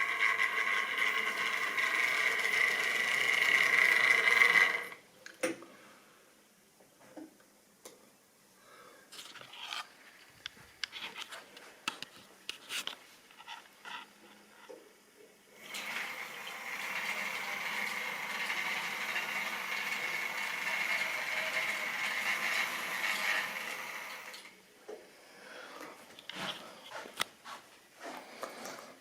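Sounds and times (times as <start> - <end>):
model train wheels rolling: 0.0 - 5.0, 15.6 - 24.6.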